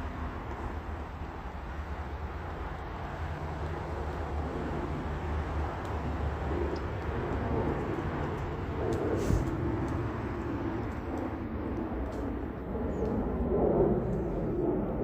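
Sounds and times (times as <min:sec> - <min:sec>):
road traffic rumble: 0:00.0 - 0:15.0
faint clicks: 0:05.8 - 0:13.3.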